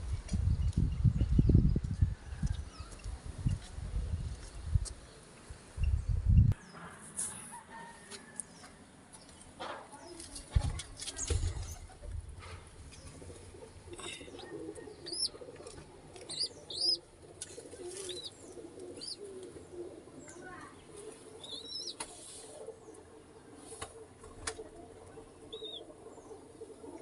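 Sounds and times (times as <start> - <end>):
pigeons cooing: 11.4 - 27.0
bird chirps: 16.3 - 17.0.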